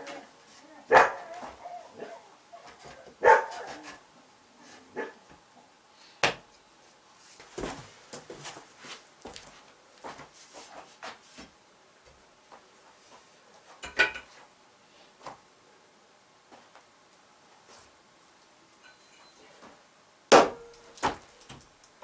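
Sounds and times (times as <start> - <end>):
sharp bangs: 20.3 - 20.9.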